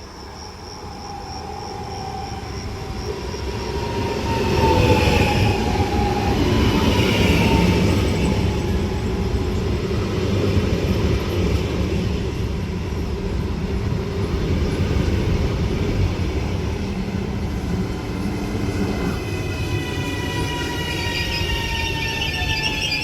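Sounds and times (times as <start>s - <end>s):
train rumbling: 0.0s - 23.0s
high-pitched train squeal: 0.1s - 10.1s, 16.3s - 23.0s.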